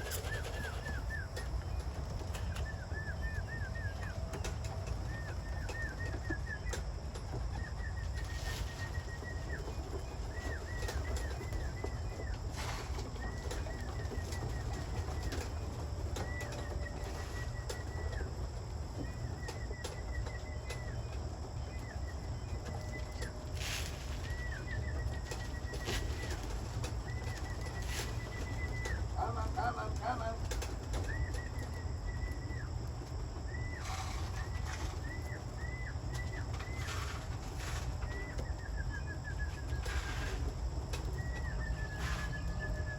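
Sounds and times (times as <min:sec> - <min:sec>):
pigeons flapping wings: 0:00.0 - 0:02.8
bird chirping: 0:00.0 - 0:42.9.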